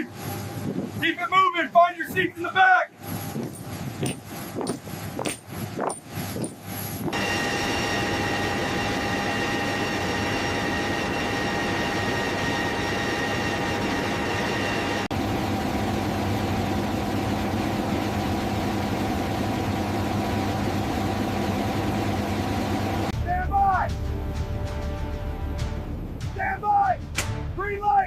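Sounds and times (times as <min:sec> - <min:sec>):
aircraft engine drone in cabin: 0:00.0 - 0:01.0, 0:03.0 - 0:23.2.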